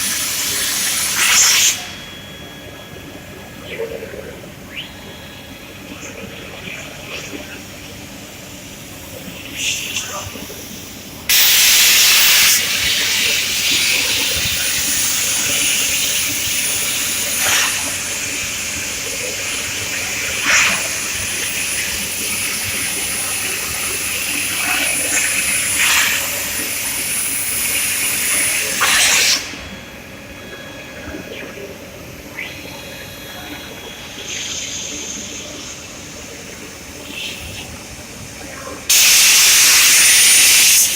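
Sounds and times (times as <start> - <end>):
plasma arc cutting metal: 0.1 - 1.9, 11.3 - 29.6, 38.9 - 40.9.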